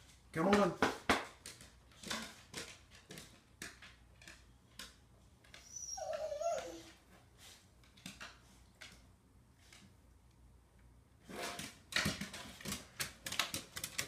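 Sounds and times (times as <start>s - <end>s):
dog claws clicking on stairs: 0.4s - 6.3s, 11.6s - 14.0s.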